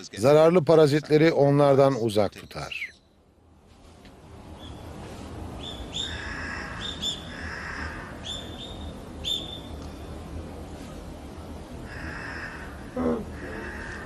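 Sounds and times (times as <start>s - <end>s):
forest background: 0.0s - 14.0s
birds chirping: 2.2s - 3.3s, 4.4s - 14.0s.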